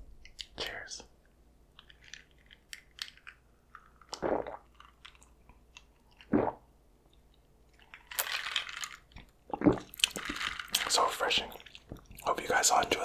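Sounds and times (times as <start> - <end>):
person swallowing: 4.1 - 4.6, 6.3 - 6.6, 9.5 - 9.9
wet mouth clicks: 4.1 - 4.6.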